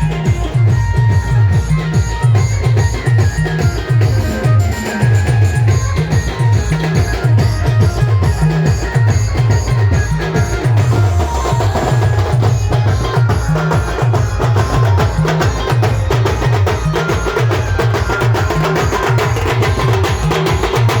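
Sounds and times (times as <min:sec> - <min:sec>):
band music: 0:00.0 - 0:21.0
driving drum beat: 0:00.0 - 0:21.0.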